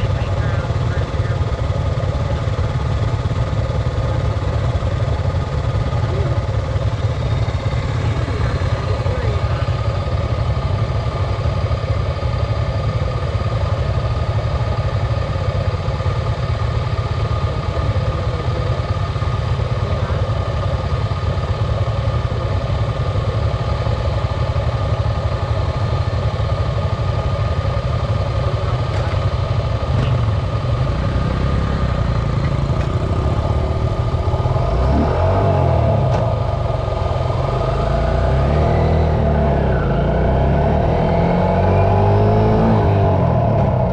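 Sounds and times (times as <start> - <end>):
dirt bike engines running: 0.0 - 43.9
engine revving: 29.8 - 43.9.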